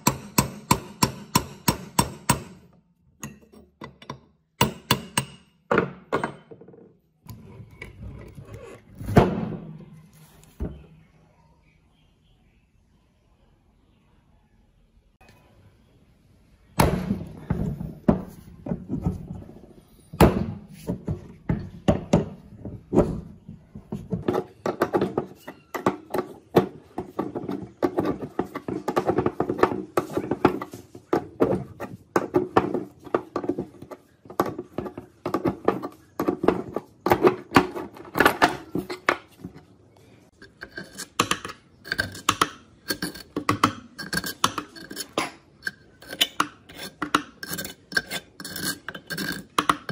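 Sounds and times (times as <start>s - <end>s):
knocks and clinks on metal parts: 0.0s - 7.0s.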